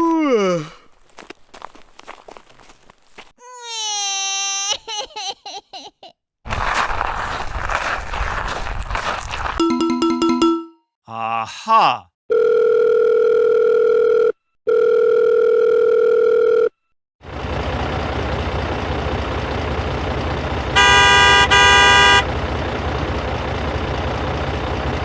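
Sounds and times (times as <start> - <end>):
vehicle engine running: 17.2 - 25.0
horn honks: 20.7 - 22.4.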